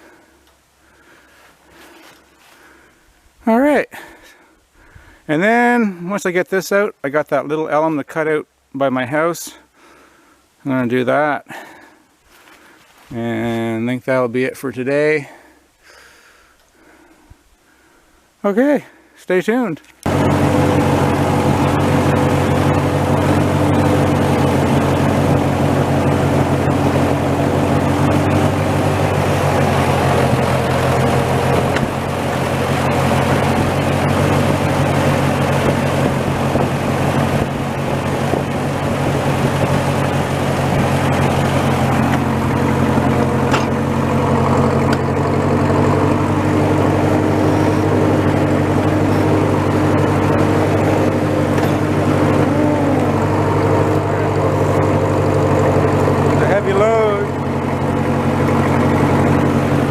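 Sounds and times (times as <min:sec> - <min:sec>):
tractor engine running steadily: 0:00.0 - 0:06.4, 0:19.8 - 0:59.9.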